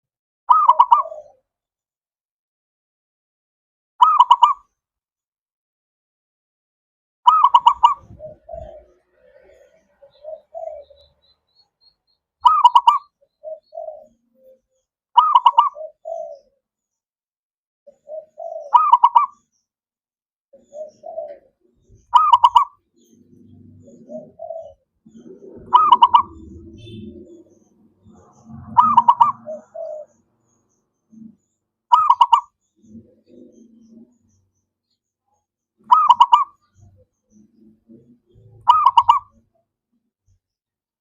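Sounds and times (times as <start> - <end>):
dove cooing: 0.5 - 1.4, 7.3 - 11.3, 12.4 - 14.6, 15.2 - 16.6, 17.9 - 19.4, 20.6 - 34.4, 35.8 - 39.5.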